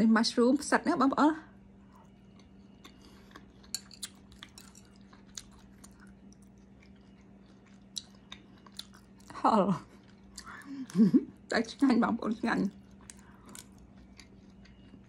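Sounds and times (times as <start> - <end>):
crunchy chewing: 1.8 - 11.1, 12.3 - 15.0.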